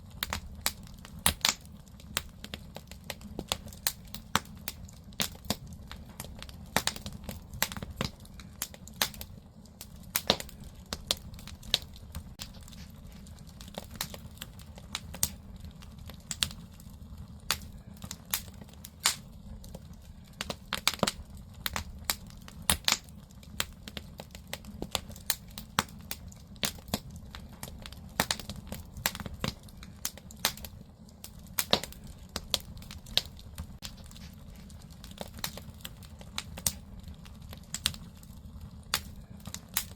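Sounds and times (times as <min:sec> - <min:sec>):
fire popping and crackling: 0:00.0 - 0:39.9
low rumble of fire: 0:00.0 - 0:39.9.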